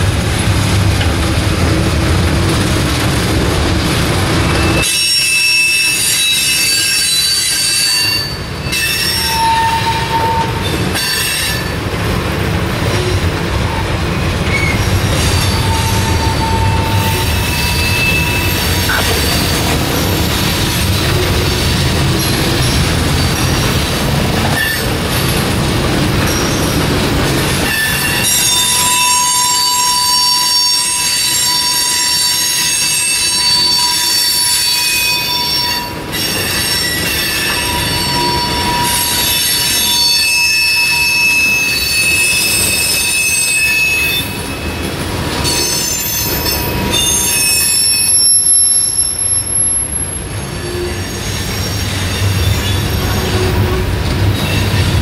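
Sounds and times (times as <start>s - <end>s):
freight cars rolling on rails: 0.0s - 55.0s
wheels squealing: 14.0s - 25.4s, 26.1s - 55.0s.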